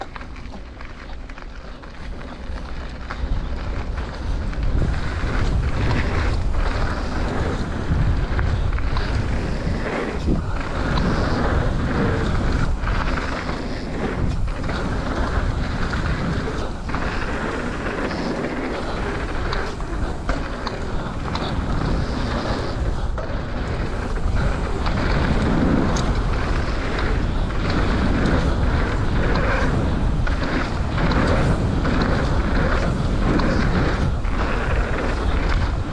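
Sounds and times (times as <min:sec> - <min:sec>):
bike tyres rolling on dirt: 0:00.0 - 0:35.9
wind buffeting microphone: 0:00.0 - 0:35.9.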